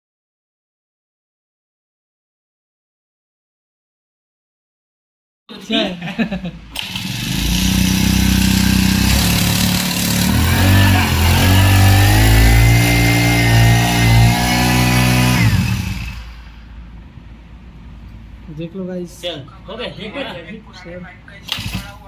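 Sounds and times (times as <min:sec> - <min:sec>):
engine idling and revving: 0:06.8 - 0:16.7.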